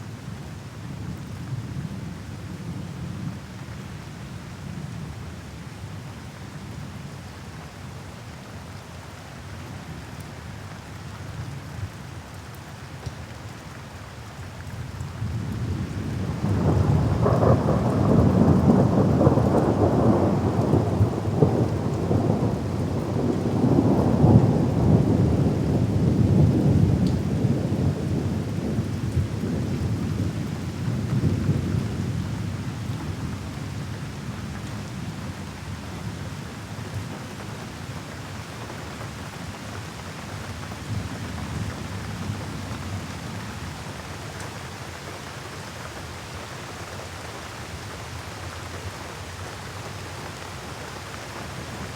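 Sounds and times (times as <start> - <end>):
thunder rumbling: 16.2 - 30.2.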